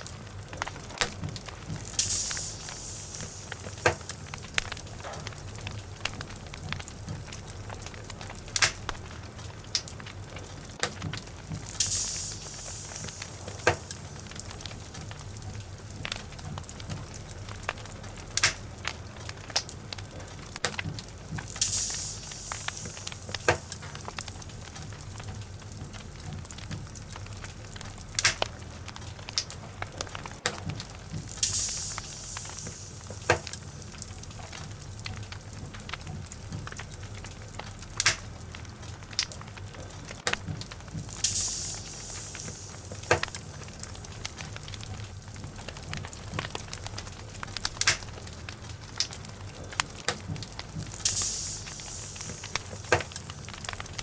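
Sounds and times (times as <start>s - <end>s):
log fire crackling: 0.0s - 54.0s
short high hiss: 1.7s - 5.1s, 11.6s - 15.4s, 21.5s - 24.2s, 31.2s - 34.6s, 41.0s - 44.2s, 50.8s - 54.0s.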